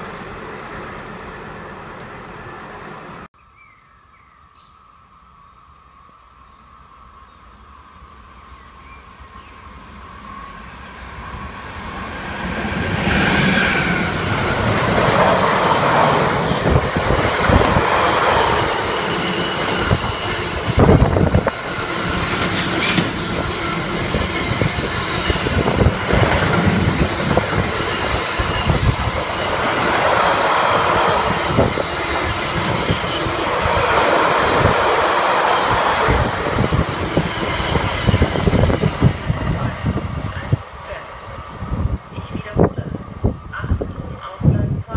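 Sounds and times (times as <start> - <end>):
train wheels clattering over rail joints: 21.6 - 29.0.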